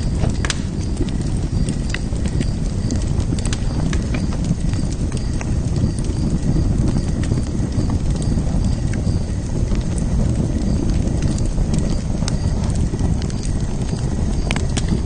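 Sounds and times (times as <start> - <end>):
fire crackles and pops: 0.0 - 15.0
low rumble of flames: 0.0 - 15.0.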